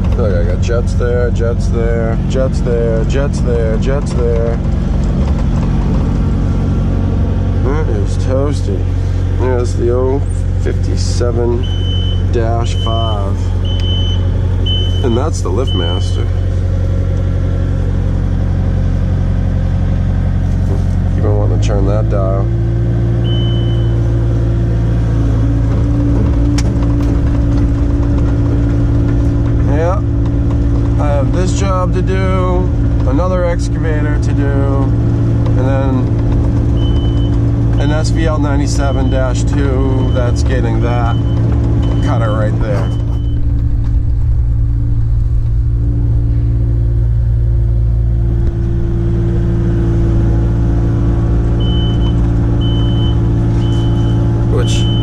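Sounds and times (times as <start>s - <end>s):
diesel engine running: 0.0s - 55.0s
high electronic beeps: 11.6s - 16.1s, 41.0s - 43.6s, 51.6s - 55.0s
short high beep: 23.3s - 24.0s.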